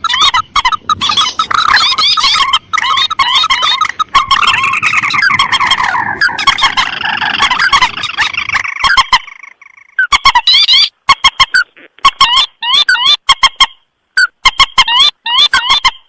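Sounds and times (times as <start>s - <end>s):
rails calling in dense chorus: 0.0s - 10.0s.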